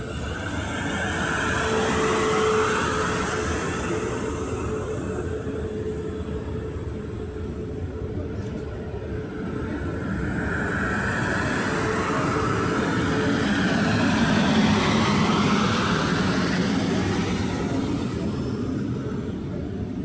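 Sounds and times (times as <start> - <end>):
train passing: 0.0 - 8.0.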